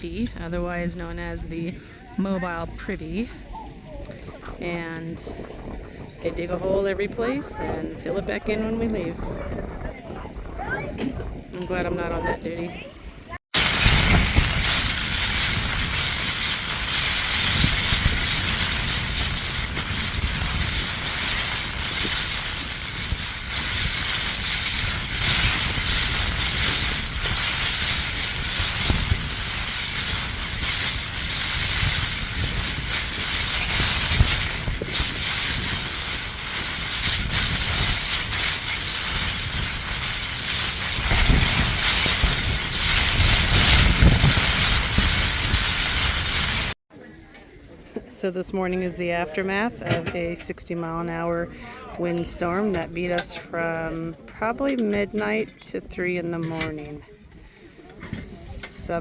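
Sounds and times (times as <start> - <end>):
wind buffeting microphone: 0.0 - 46.8.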